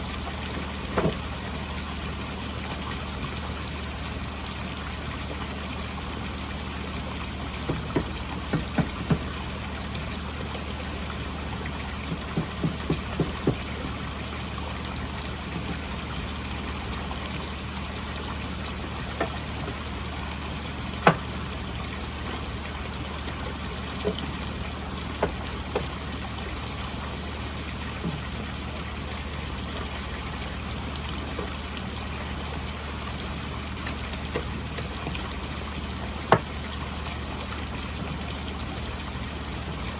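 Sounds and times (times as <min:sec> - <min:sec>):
pond water trickling: 0:00.0 - 0:39.9
sharp knocks: 0:01.0 - 0:01.2, 0:07.7 - 0:09.3, 0:12.1 - 0:14.0, 0:21.0 - 0:21.3.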